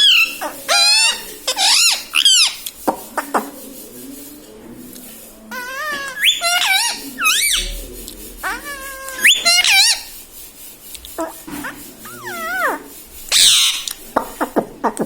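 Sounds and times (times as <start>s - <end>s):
parrot calling: 0.0s - 2.7s, 5.5s - 10.2s, 12.0s - 14.0s.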